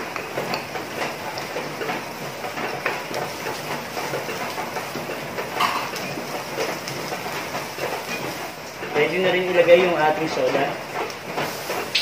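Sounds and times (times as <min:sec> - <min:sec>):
onion sizzling in hot oil: 0:00.0 - 0:12.0
spatula scraping and tapping pan: 0:00.1 - 0:00.7, 0:01.3 - 0:08.5.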